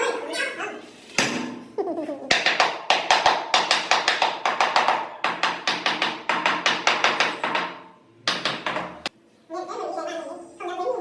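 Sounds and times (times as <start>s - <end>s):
rapid hammer taps on tiles: 2.3s - 9.1s.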